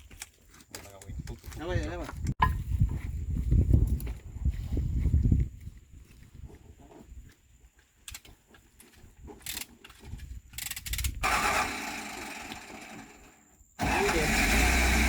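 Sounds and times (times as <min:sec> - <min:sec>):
hand tools clicking on metal: 0:08.0 - 0:11.2.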